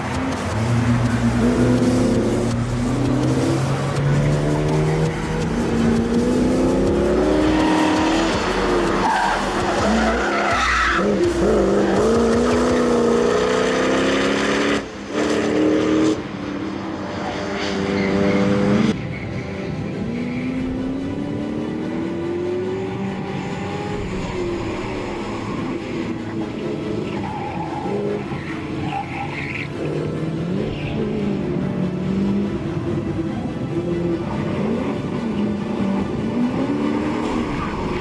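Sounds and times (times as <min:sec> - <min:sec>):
car engine revving hard: 0:00.3 - 0:10.2, 0:11.0 - 0:16.3.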